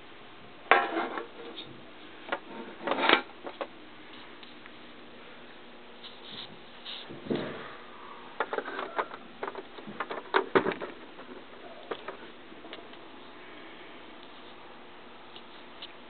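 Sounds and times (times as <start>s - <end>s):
sharp clicks and light knocks: 8.4s - 13.0s.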